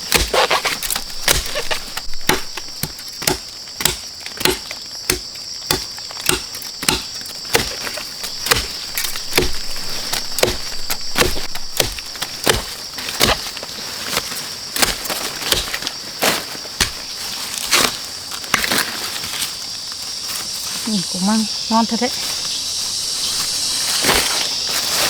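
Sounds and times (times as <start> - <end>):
knife chopping bamboo: 0.0 - 13.5, 14.8 - 15.9.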